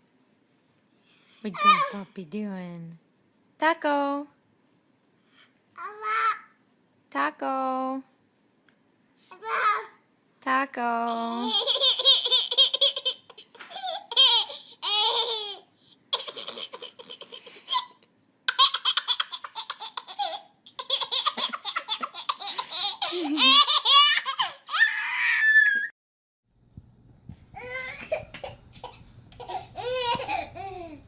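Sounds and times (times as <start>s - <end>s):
baby laughing: 11.2s - 25.2s, 27.6s - 31.0s.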